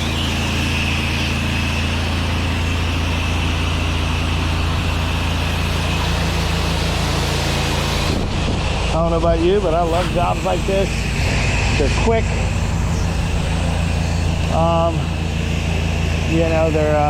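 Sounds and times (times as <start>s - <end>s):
high-pressure water spray hiss: 0.0s - 8.8s
pressure washer engine running: 0.0s - 17.0s.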